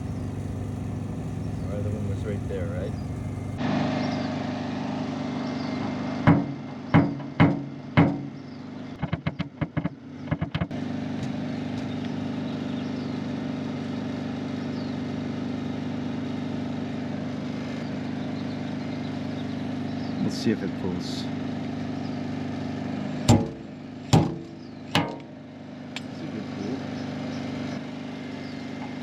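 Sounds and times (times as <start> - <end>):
steady motor hum: 0.0 - 29.0
tool tapping on sheet metal: 6.2 - 8.4, 9.0 - 10.8, 23.3 - 25.3.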